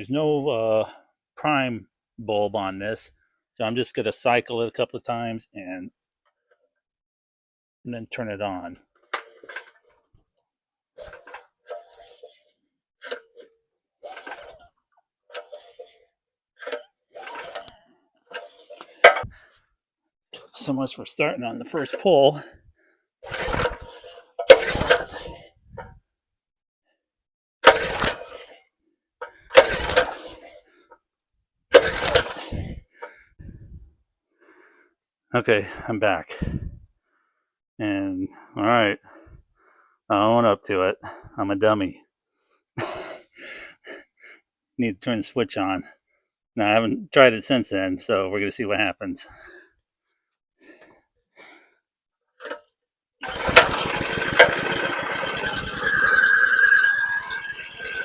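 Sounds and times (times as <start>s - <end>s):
recoil starter pulled: 23.3s - 25.3s, 29.5s - 30.5s, 31.7s - 32.7s, 53.2s - 58.0s
engine turning over: 53.2s - 58.0s.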